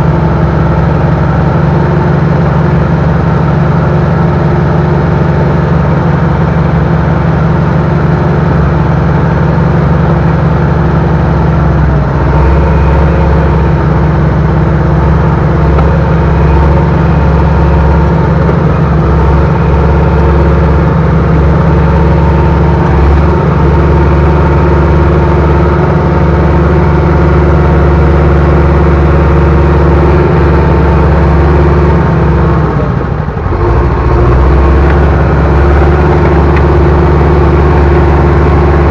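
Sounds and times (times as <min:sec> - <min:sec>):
heavy equipment engine rumbling: 0:00.0 - 0:38.9.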